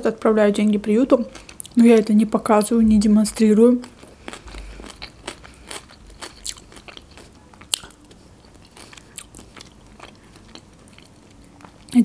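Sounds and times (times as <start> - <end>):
close chewing with mouth clicks: 1.3 - 1.8, 3.8 - 12.0.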